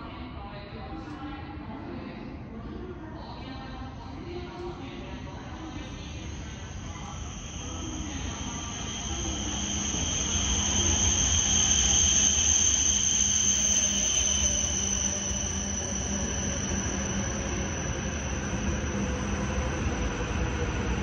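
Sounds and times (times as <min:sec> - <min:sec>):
train rumble and whine: 0:00.0 - 0:21.0
lower whine sinking in pitch: 0:05.4 - 0:21.0.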